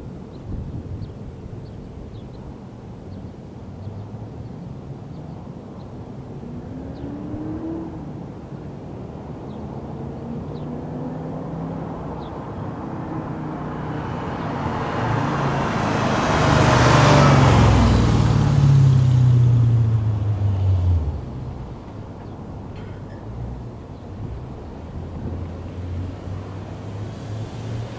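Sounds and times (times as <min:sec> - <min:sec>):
car engine driving past: 0:10.3 - 0:27.9.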